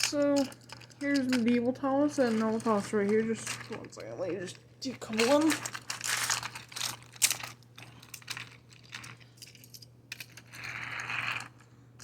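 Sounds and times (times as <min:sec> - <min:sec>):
plastic scraping: 0:00.0 - 0:09.3.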